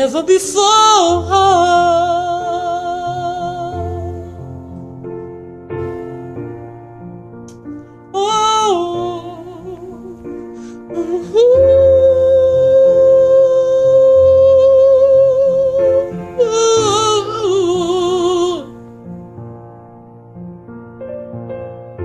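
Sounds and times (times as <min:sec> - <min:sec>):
man singing wordless vocal run: 0:00.0 - 0:04.3, 0:08.2 - 0:18.7
soft piano chords: 0:00.0 - 0:22.0.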